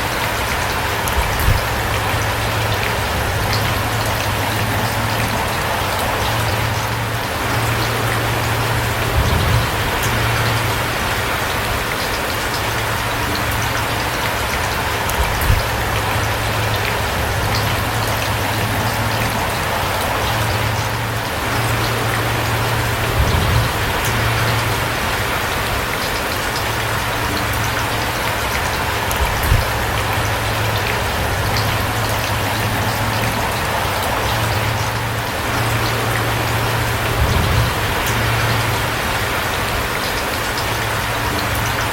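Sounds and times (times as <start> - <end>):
steady rain falling: 0.0 - 41.9
low rumble: 0.8 - 25.6, 26.8 - 39.8
dull low thumps: 1.0 - 11.3, 20.6 - 25.0, 29.1 - 33.6, 34.3 - 39.0.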